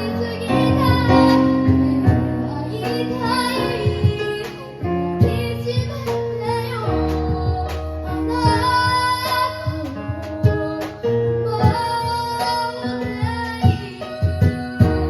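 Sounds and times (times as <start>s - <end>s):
child singing: 0.0s - 15.0s
keyboard and drums band: 0.0s - 15.0s.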